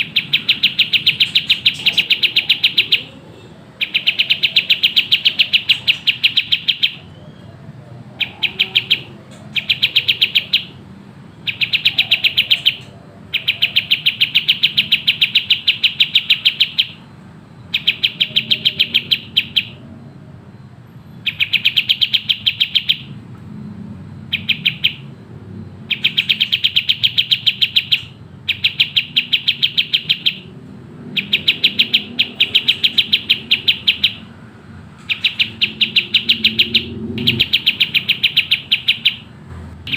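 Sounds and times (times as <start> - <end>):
bird singing trilled song: 0.0 - 20.1, 21.1 - 23.2, 24.2 - 39.9.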